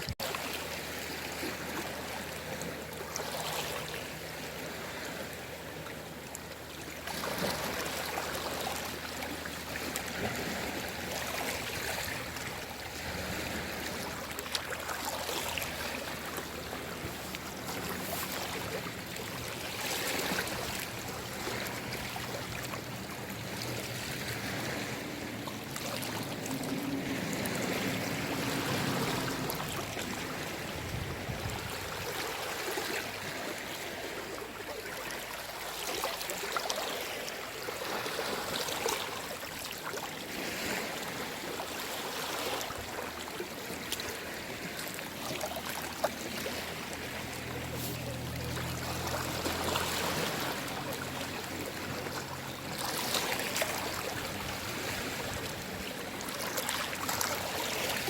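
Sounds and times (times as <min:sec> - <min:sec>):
small waves lapping on shore: 0:00.0 - 0:58.0.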